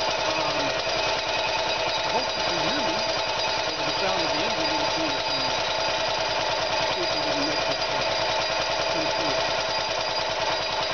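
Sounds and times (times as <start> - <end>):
cooling fan whine: 0.0 - 10.9
small engine idling: 0.0 - 10.9
person talking: 0.3 - 0.8, 2.1 - 3.1, 3.7 - 5.6, 6.9 - 8.1, 9.0 - 9.5.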